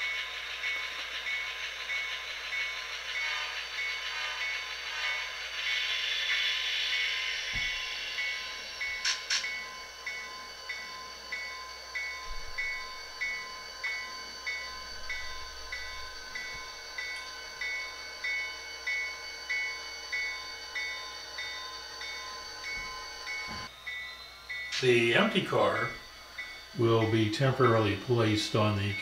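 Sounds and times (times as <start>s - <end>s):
model locomotive bell ringing: 0.0s - 29.0s
sharp click: 9.0s - 9.5s.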